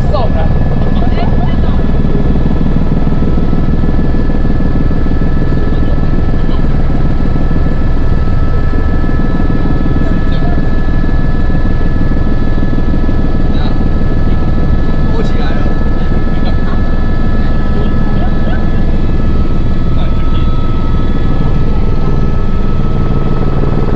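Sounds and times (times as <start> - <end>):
helicopter rotor and engine drone: 0.0 - 23.9
thin steady whine: 0.0 - 23.9.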